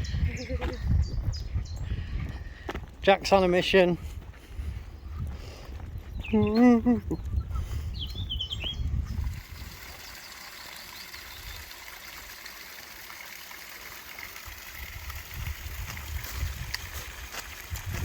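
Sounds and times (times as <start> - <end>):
brook flowing and trickling: 8.8 - 18.0.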